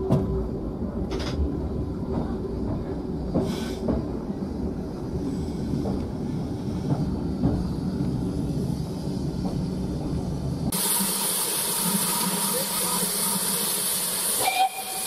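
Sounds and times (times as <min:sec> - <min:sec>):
railway carriage rumbling: 0:00.0 - 0:15.0
steam hissing: 0:10.7 - 0:15.0.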